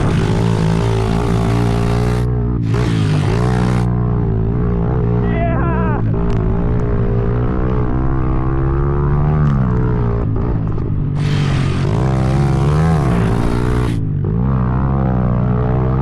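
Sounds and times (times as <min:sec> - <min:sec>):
motorbike engine revving: 0:00.0 - 0:16.0
loud rushing hiss: 0:11.2 - 0:11.9.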